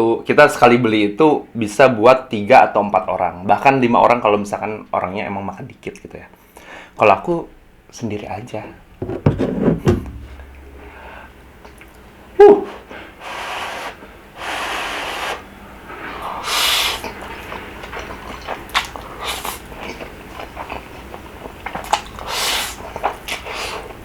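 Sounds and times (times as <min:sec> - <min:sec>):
slurping noodles: 0:13.2 - 0:15.4, 0:16.0 - 0:17.3
chewing: 0:17.0 - 0:24.0.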